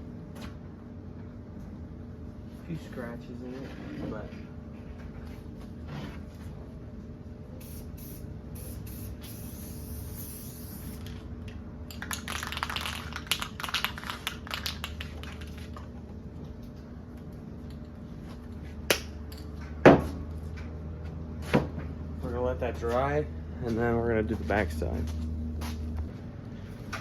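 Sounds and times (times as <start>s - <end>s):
spray can hissing: 7.6s - 11.2s.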